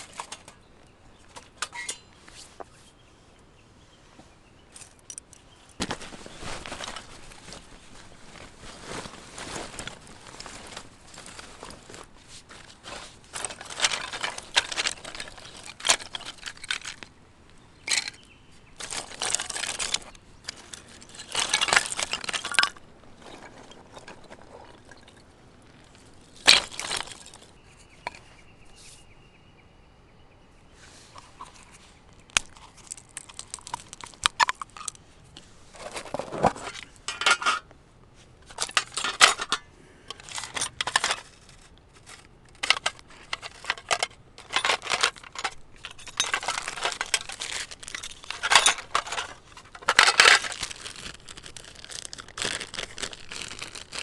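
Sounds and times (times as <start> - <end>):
clinks: 1.4 - 2.2, 42.6 - 50.7
rustling and crunching handling: 3.8 - 29.2, 30.7 - 54.0.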